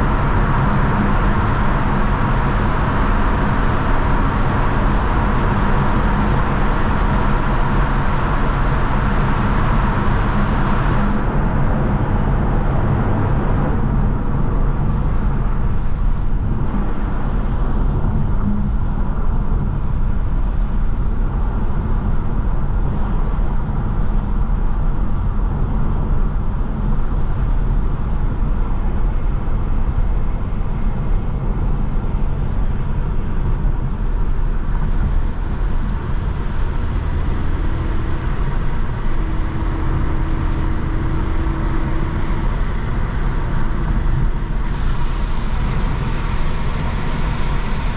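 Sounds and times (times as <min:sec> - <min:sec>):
car engine and exhaust drone: 0:00.0 - 0:47.9
tyre and road noise: 0:23.2 - 0:47.9.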